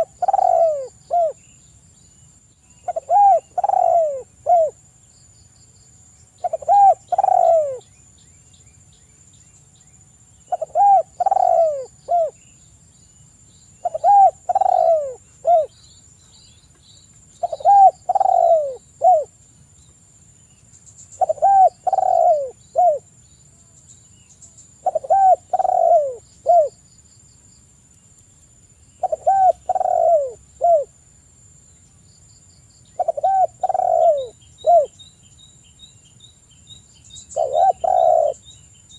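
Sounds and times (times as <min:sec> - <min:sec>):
dove cooing: 0:00.0 - 0:01.4, 0:02.8 - 0:04.8, 0:06.4 - 0:07.8, 0:10.5 - 0:12.4, 0:13.8 - 0:15.7, 0:17.4 - 0:19.3, 0:21.2 - 0:23.1, 0:24.8 - 0:26.8, 0:29.0 - 0:30.9, 0:33.0 - 0:35.0, 0:37.3 - 0:38.4
faint small bird chirps: 0:00.0 - 0:26.9, 0:27.8 - 0:31.0, 0:31.7 - 0:38.9.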